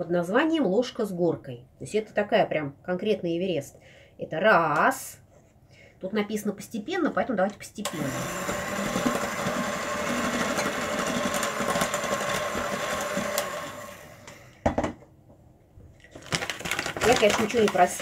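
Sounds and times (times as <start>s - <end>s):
electric mixer running: 7.9s - 14.4s.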